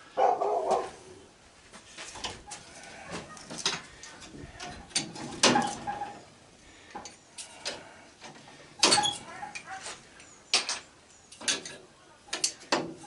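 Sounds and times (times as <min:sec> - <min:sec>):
scrap metal clanking: 0:03.0 - 0:06.2.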